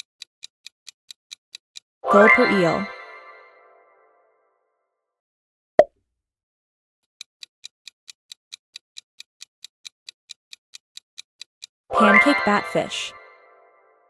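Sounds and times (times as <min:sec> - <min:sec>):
clock ticking countdown: 0:00.0 - 0:03.3, 0:07.2 - 0:13.3.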